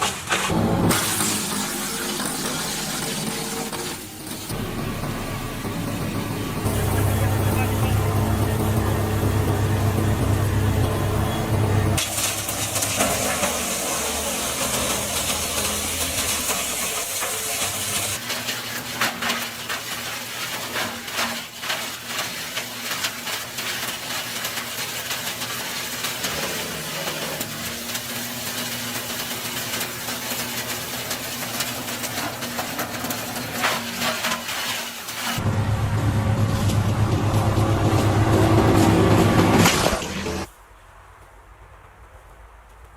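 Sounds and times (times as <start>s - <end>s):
engine hum: 0.0s - 18.2s, 35.4s - 40.5s
wood chipper hissing and crackling: 0.0s - 40.6s.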